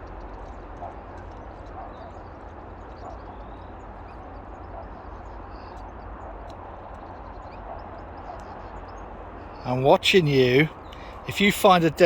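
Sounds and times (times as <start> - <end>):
distant motorway traffic: 0.0 - 12.0.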